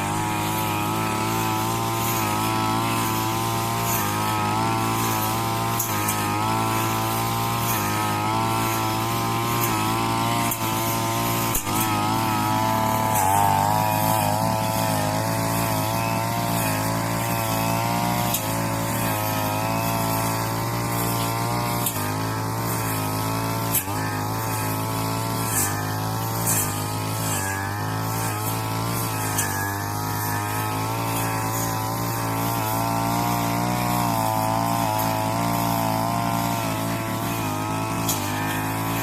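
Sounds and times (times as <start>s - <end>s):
brush cutter engine running: 0.0s - 39.0s.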